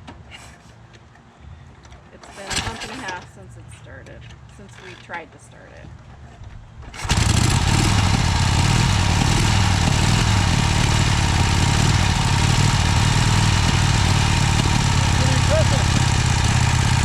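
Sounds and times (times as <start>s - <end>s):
motorcycle engine running: 6.8s - 17.0s.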